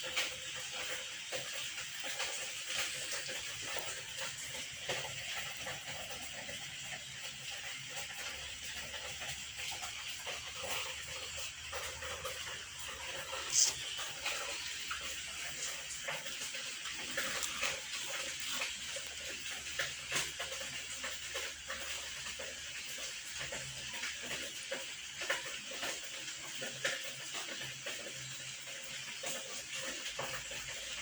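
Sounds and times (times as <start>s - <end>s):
small movement sounds: 0.0s - 22.3s.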